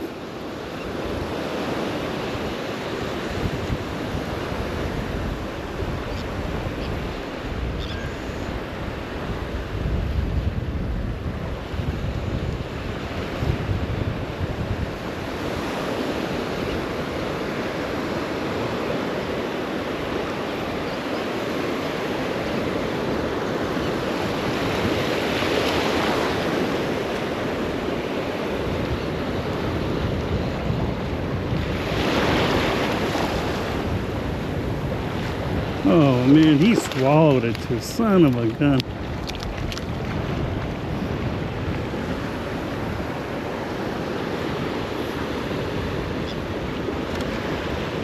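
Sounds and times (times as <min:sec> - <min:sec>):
ocean surf breaking: 0:00.0 - 0:07.7, 0:08.6 - 0:48.0
wind buffeting microphone: 0:03.3 - 0:15.7, 0:22.5 - 0:48.0.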